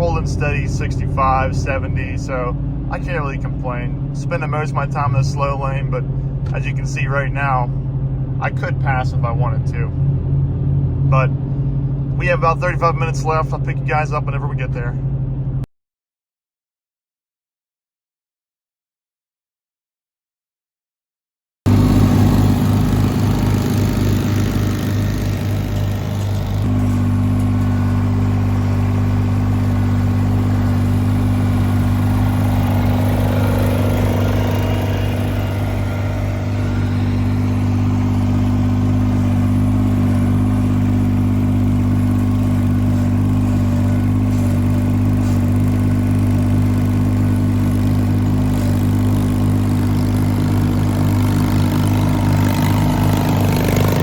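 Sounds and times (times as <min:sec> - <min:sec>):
garden tractor engine running: 0:00.0 - 0:07.6, 0:21.7 - 0:54.0.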